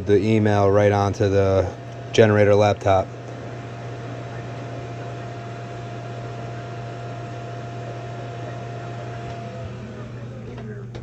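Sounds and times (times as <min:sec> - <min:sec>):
hvac equipment humming: 0:00.0 - 0:11.0.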